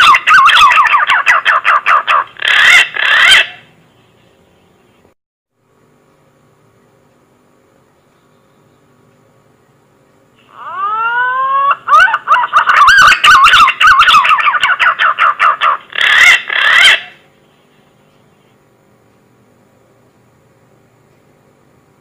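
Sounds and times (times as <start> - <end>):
pigeon whistled song: 0.0 - 3.6, 10.6 - 15.3.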